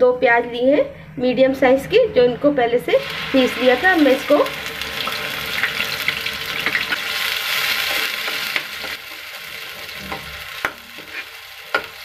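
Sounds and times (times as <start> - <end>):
onion paste sizzling in oil: 3.0 - 12.0
spoon scraping pan: 10.1 - 12.0.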